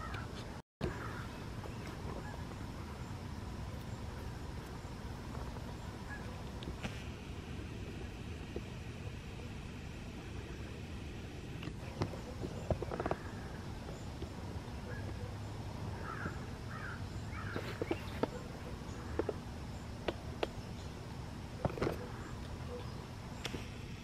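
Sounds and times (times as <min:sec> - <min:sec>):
steady low rumble: 0:00.2 - 0:24.0
bird chirps: 0:14.8 - 0:21.0, 0:21.9 - 0:23.7.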